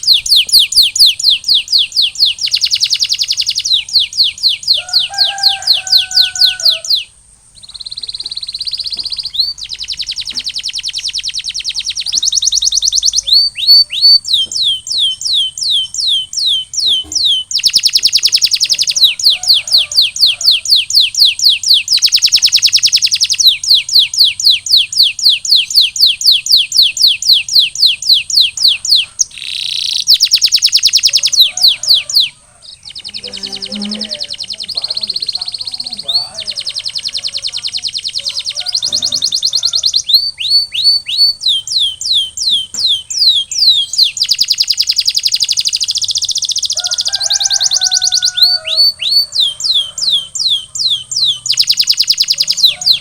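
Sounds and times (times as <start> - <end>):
canary singing trills: 0.0 - 53.0.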